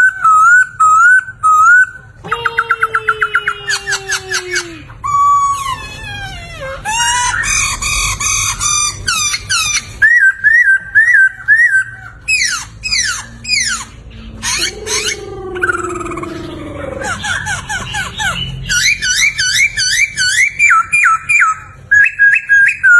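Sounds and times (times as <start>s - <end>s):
bird singing whistled notes: 9.2s - 13.8s, 18.7s - 22.9s.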